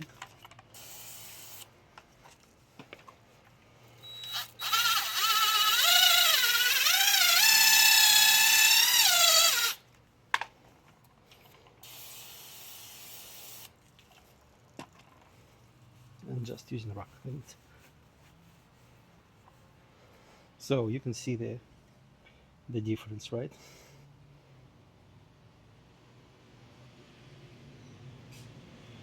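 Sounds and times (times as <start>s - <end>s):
power drill motor whine: 0.8s - 1.7s, 4.0s - 9.8s.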